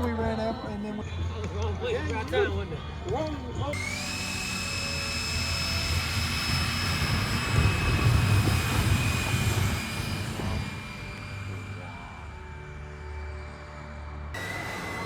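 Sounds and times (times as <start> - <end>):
model jet whining in flight: 3.8 - 15.0.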